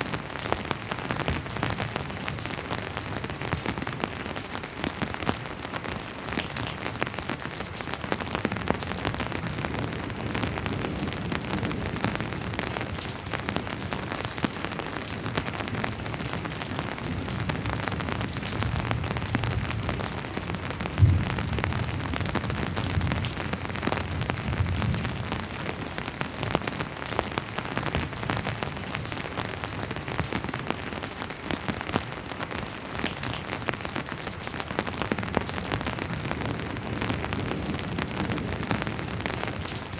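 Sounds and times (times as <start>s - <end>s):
rain on a hard surface: 0.0s - 39.9s
distant thunder rumble: 18.6s - 25.2s.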